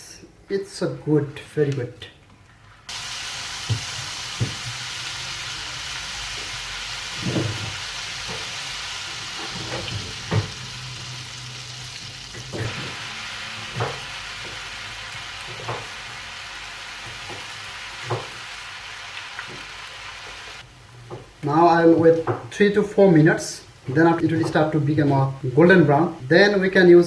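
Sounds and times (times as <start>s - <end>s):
batter sizzling in hot oil: 2.9s - 20.7s.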